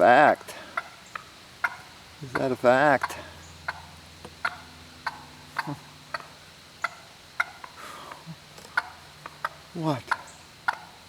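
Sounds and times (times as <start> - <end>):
turkey alarm putts: 0.4 - 11.0.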